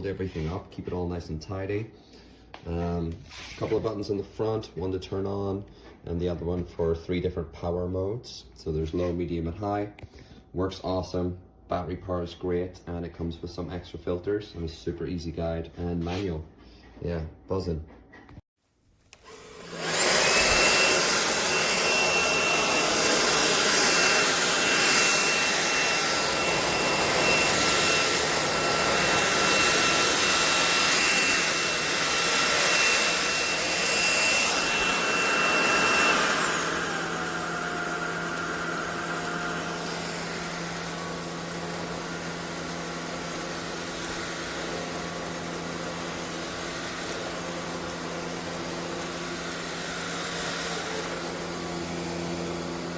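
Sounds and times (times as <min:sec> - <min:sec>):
stick vacuum running: 0:19.2 - 0:52.9
high whine: 0:19.8 - 0:42.1.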